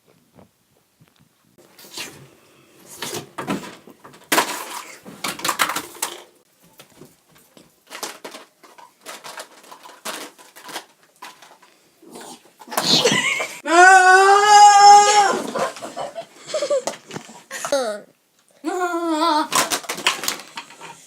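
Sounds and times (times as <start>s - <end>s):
crunching and clattering eating: 1.1s - 13.6s, 19.5s - 21.0s.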